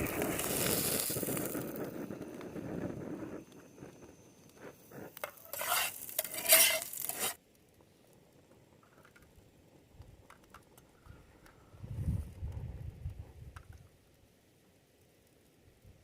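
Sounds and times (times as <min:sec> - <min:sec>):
metal cookware clattering and scraping: 0:05.3 - 0:07.4.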